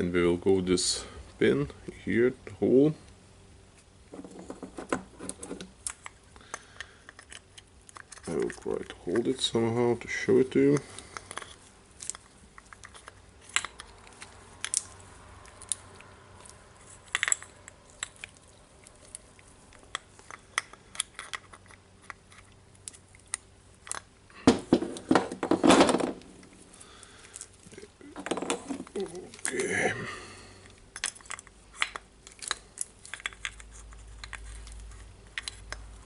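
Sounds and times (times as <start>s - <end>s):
metal parts clicking and tapping: 10.6s - 18.4s, 30.9s - 35.9s.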